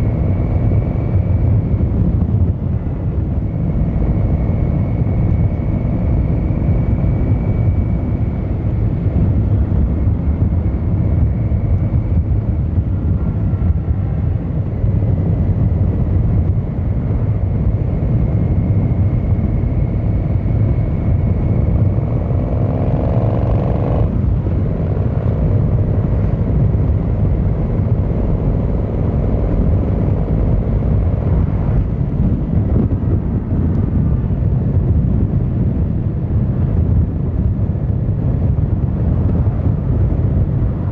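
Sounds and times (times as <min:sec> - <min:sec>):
motorcycle engine rumbling: 0:20.1 - 0:34.2.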